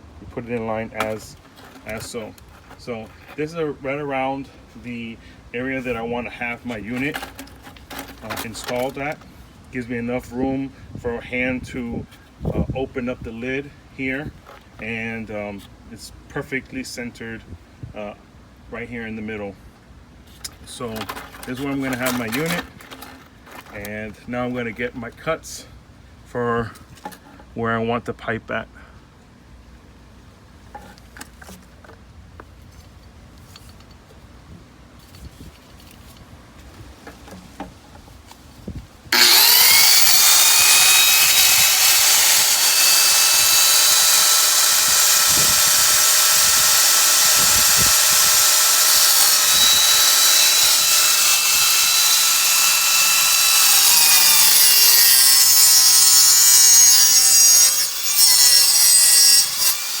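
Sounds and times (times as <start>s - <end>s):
power saw cutting pipe: 39.1s - 60.0s.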